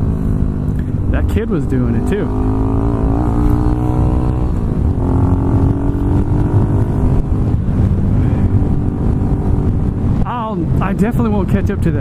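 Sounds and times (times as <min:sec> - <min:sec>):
motorcycle engine running: 0:00.0 - 0:11.2
wind noise on microphone: 0:00.0 - 0:12.0.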